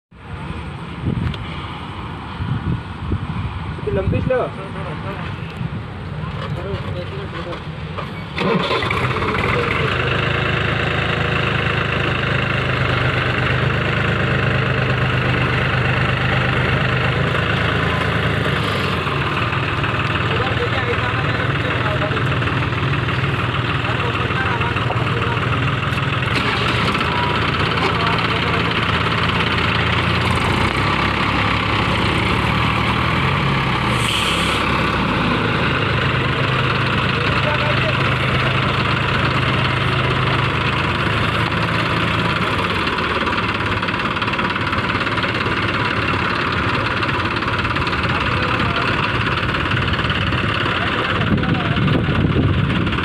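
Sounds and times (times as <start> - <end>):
tractor diesel engine idling: 3.9 - 53.0
brief hiss: 33.9 - 34.6.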